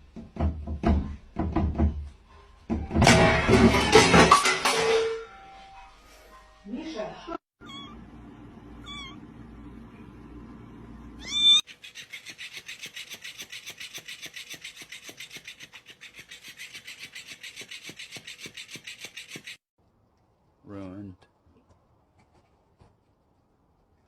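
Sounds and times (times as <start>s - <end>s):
cat meowing: 7.6s - 8.0s, 8.8s - 9.2s, 11.2s - 11.6s.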